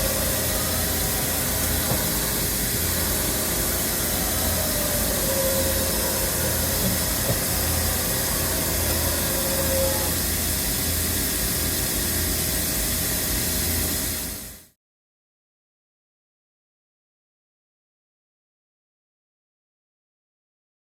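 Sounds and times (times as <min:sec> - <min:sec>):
milling machine running: 0:00.0 - 0:14.4.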